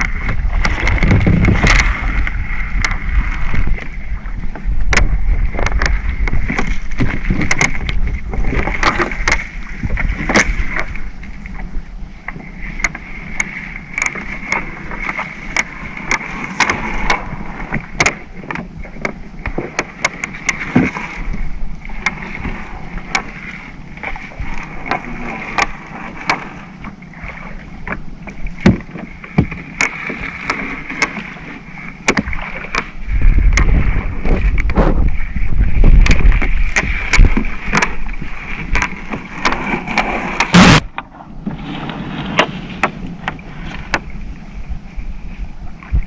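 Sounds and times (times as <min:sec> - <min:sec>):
boat engine running: 0:00.0 - 0:46.0
wind rumble on microphone: 0:00.0 - 0:46.0
clicks and knocks of net hauling: 0:12.3 - 0:35.1, 0:35.9 - 0:44.1.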